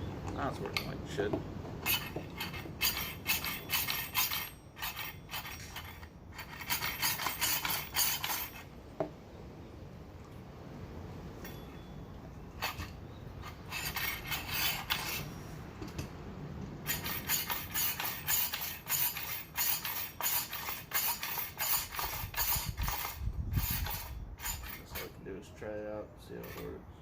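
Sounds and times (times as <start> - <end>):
metal parts scraping: 1.8 - 8.7, 12.5 - 16.1, 16.8 - 25.2.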